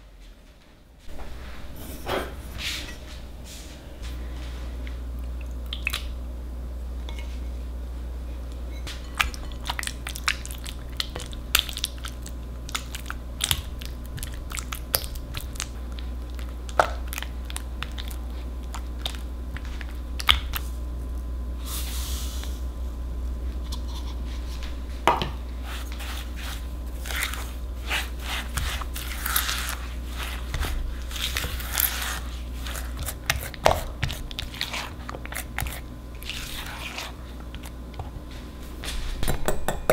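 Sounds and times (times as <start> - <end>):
steady low hum: 0.0 - 39.9
spatula scraping glass bowl: 25.6 - 37.7.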